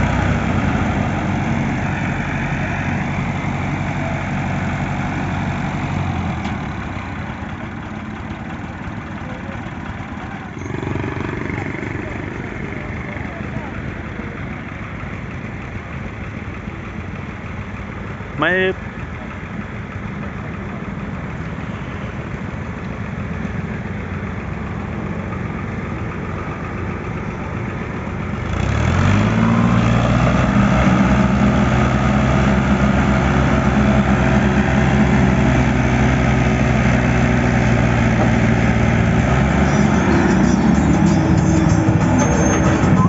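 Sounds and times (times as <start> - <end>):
tractor engine running: 0.0 - 43.0.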